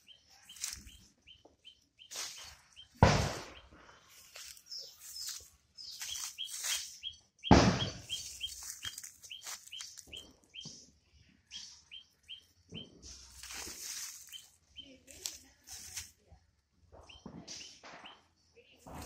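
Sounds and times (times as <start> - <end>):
bird chirping: 0.0 - 15.0, 17.0 - 19.0
loud thump: 3.0 - 3.7, 7.5 - 8.3
crackly rustling: 3.8 - 7.0, 8.0 - 10.5, 13.1 - 16.2.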